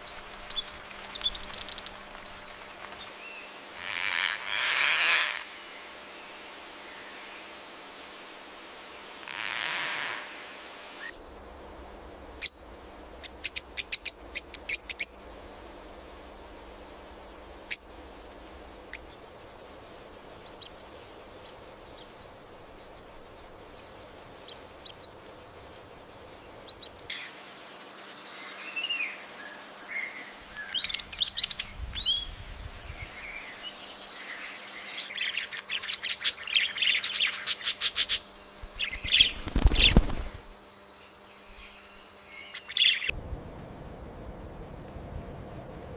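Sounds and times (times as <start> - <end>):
birds chirping and calling: 0.0 - 5.5, 30.0 - 40.6, 41.3 - 43.1.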